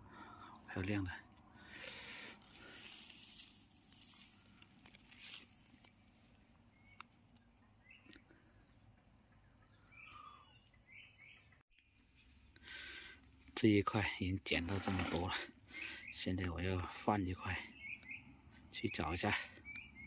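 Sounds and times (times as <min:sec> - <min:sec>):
light rustle: 0:02.3 - 0:06.5
faint bird chirps: 0:06.6 - 0:13.6, 0:17.4 - 0:20.0.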